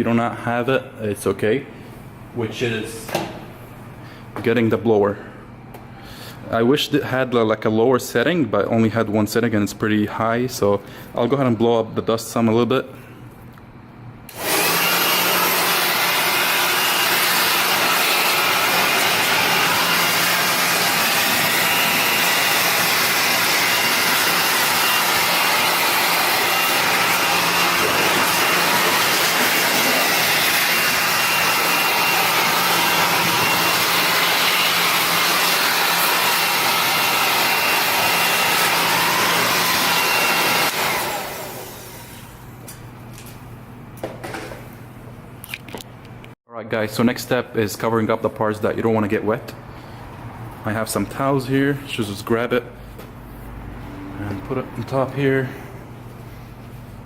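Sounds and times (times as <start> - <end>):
blower whining and rushing air: 14.3 - 42.5.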